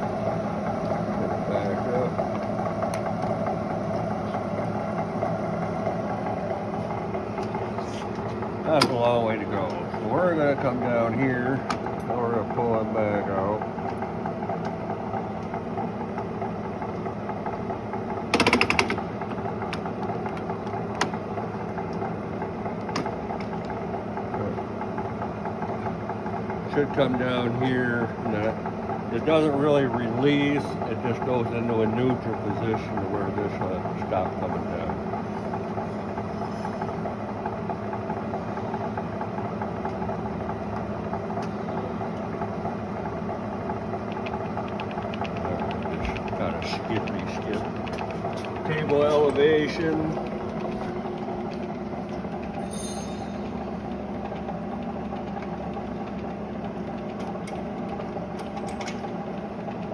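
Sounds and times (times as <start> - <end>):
drill press running: 0.0 - 59.9
rapid clatter: 42.5 - 51.7
sharp clicks: 44.0 - 49.0.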